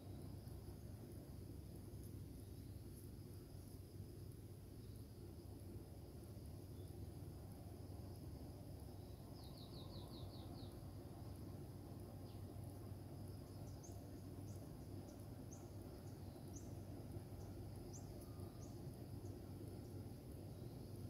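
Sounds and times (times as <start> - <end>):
small bird chirps: 8.9 - 11.4, 13.4 - 21.0.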